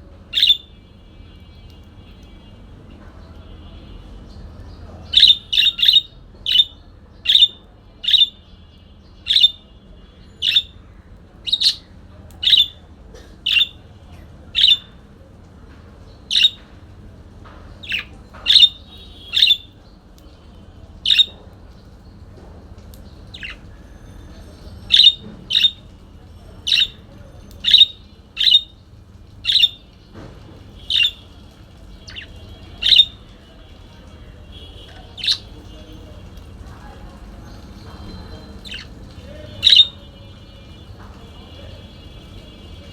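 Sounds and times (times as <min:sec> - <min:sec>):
parakeet squawking: 0:00.3 - 0:00.7, 0:05.1 - 0:08.4, 0:09.3 - 0:09.6, 0:10.4 - 0:10.8, 0:11.4 - 0:12.8, 0:13.5 - 0:13.8, 0:14.6 - 0:15.0, 0:16.3 - 0:16.6, 0:17.8 - 0:19.8, 0:21.0 - 0:21.4, 0:23.3 - 0:23.7, 0:24.9 - 0:25.8, 0:26.7 - 0:27.0, 0:27.6 - 0:28.8, 0:29.4 - 0:29.9, 0:30.8 - 0:31.3, 0:32.0 - 0:33.3, 0:34.6 - 0:35.8, 0:38.5 - 0:40.8.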